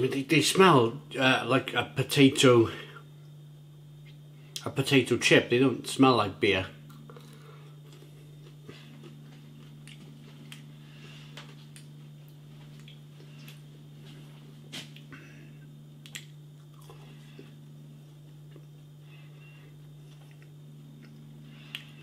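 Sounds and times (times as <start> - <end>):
low steady hum: 0.0 - 22.0
person crunching and chewing: 6.8 - 10.7, 16.0 - 17.6.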